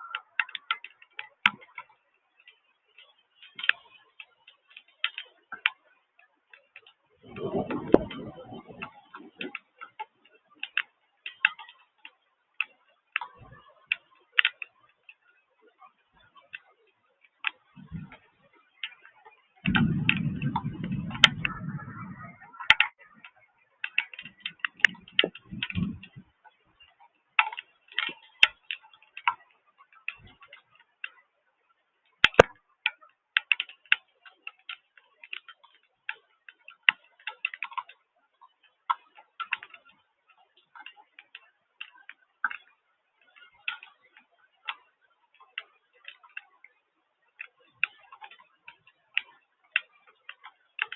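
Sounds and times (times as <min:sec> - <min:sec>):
low rumble: 0:07.2 - 0:09.4, 0:19.6 - 0:22.9, 0:24.8 - 0:26.3
water drops ticking on hard surface: 0:18.8 - 0:26.3.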